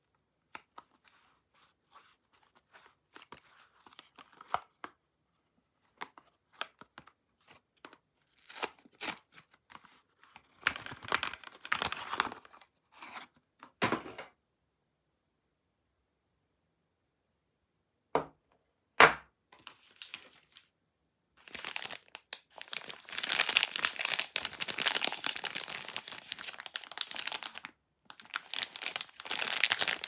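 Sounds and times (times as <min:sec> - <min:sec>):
wrapper tearing and crinkling: 0:08.3 - 0:09.3, 0:21.4 - 0:30.0.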